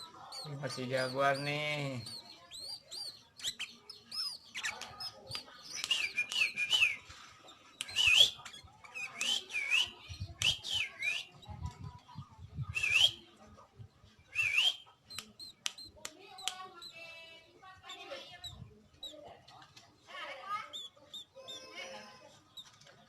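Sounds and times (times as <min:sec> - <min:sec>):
bird singing whistled phrases: 0:02.0 - 0:07.1, 0:07.8 - 0:11.5, 0:12.7 - 0:13.2, 0:14.3 - 0:15.9.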